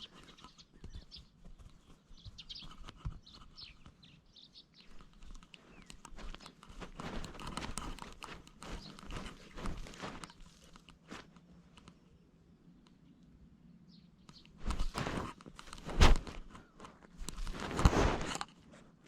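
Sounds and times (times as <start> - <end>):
rustling scratching noise: 0.0 - 4.2, 4.8 - 12.0, 14.3 - 19.0
faint bird chirps: 0.0 - 6.6, 13.0 - 14.6.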